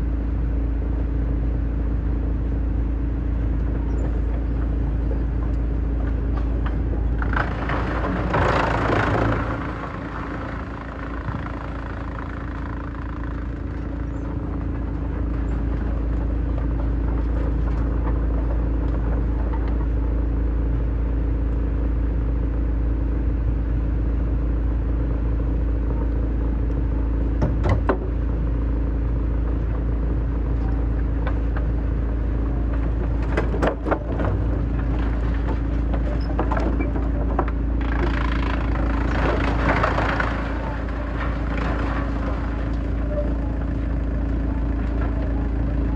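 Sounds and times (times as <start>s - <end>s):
wood shredder droning: 0.0s - 45.9s
wood crunching in shredder: 2.2s - 45.9s
sharp cracks of wood breaking: 6.2s - 19.9s, 32.4s - 45.8s.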